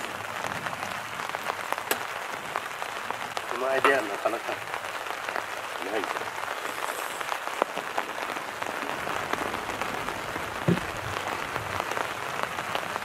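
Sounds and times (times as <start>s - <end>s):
wood fire crackling and popping: 0.0s - 13.0s
knock: 10.6s - 10.9s.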